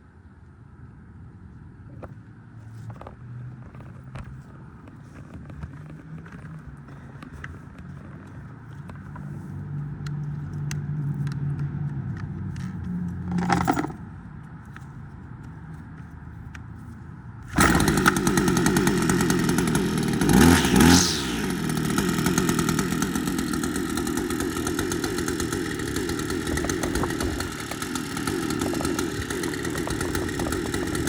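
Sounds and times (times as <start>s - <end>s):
clicks and scraping of handling: 1.9s - 17.8s
starter cord rasp: 17.5s - 31.0s.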